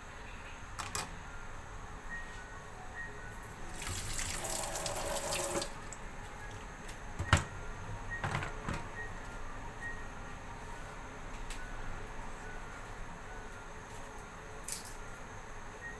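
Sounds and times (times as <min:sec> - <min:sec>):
water running: 0:03.7 - 0:06.1.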